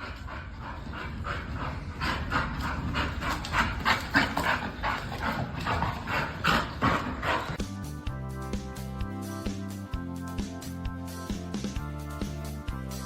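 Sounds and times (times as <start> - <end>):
dog panting: 0.0 - 7.7.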